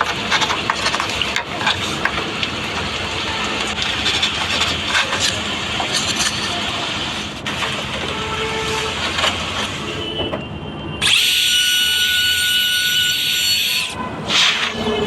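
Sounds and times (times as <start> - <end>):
power drill on wood: 11.0 - 15.0.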